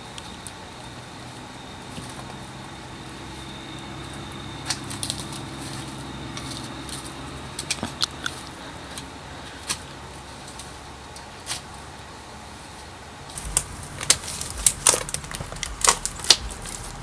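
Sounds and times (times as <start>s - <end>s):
steady low hum: 13.2s - 17.0s.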